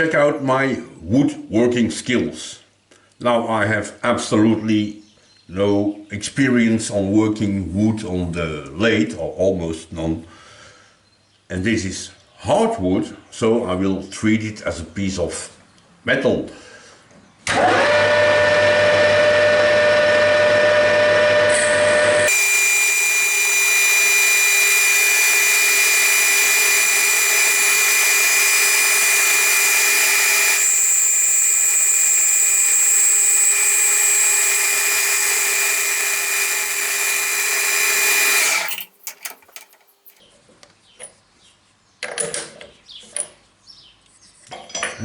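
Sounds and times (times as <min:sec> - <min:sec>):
lathe machine whine: 0:17.6 - 0:39.7.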